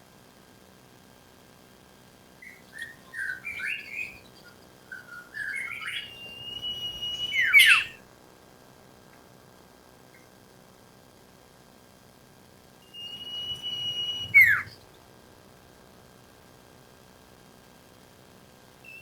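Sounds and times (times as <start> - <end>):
bird song: 2.4 - 8.0, 12.8 - 15.0.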